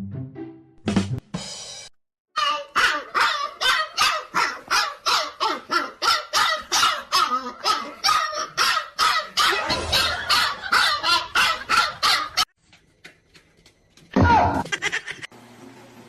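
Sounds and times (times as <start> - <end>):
dog barking rapidly: 2.4 - 12.5.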